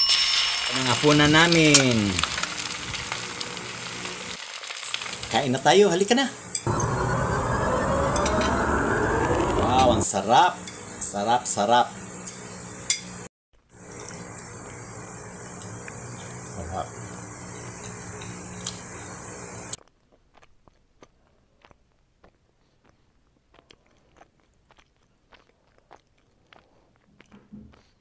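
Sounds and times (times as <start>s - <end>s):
person chewing crunchy food: 19.8s - 28.0s.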